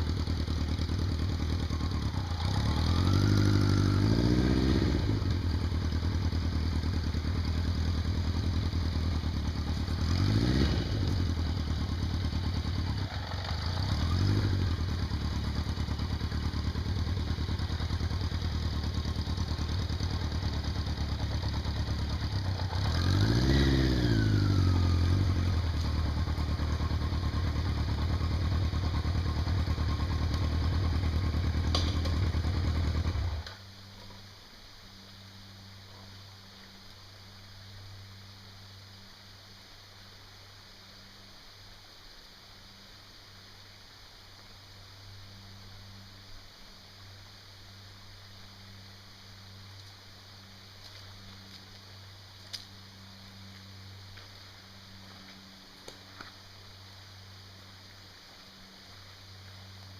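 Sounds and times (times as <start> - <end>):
vehicle engine revving: 0.0 - 33.6.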